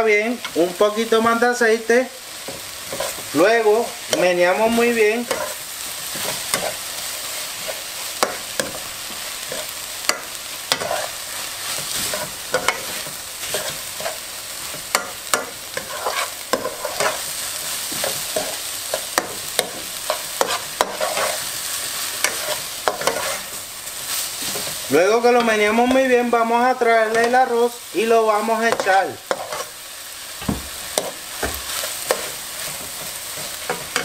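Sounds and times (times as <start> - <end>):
onion sizzling in oil: 0.0 - 34.0
spoon scraping a pot: 5.3 - 5.6, 9.5 - 11.1, 15.8 - 17.2, 19.2 - 21.5, 22.2 - 23.5, 29.3 - 29.8.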